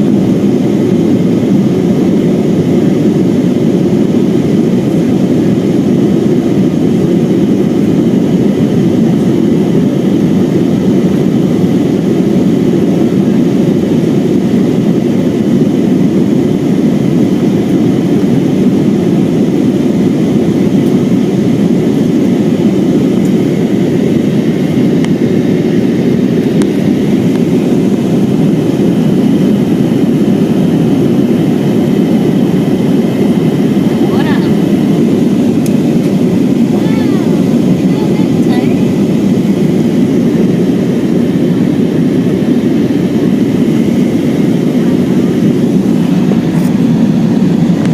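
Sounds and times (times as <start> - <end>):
jet engines rumbling in cabin: 0.0 - 47.9
rushing air: 10.6 - 47.9.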